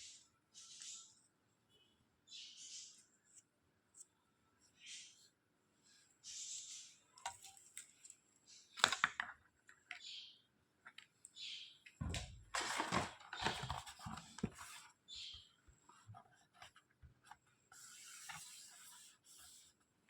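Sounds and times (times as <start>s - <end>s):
scraping and rustling: 12.5s - 15.0s.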